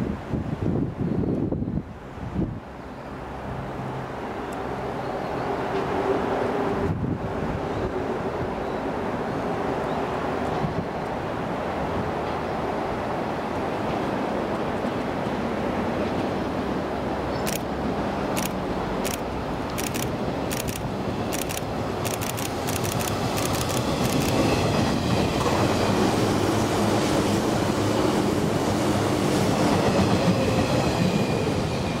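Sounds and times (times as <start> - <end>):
train cars rumbling past: 2.8 - 32.0
train wheels clicking over rail joints: 18.3 - 25.6.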